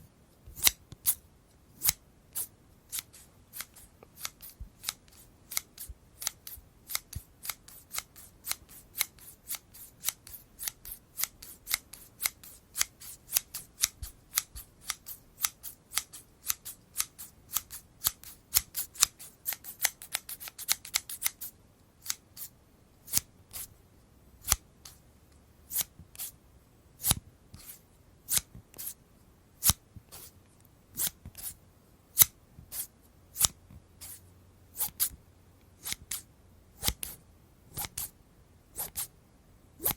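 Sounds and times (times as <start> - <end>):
scissors snipping: 1.8 - 22.5, 27.0 - 29.0, 31.0 - 31.6, 32.2 - 34.2, 34.8 - 35.2, 35.8 - 36.2, 36.8 - 38.1, 38.8 - 39.1.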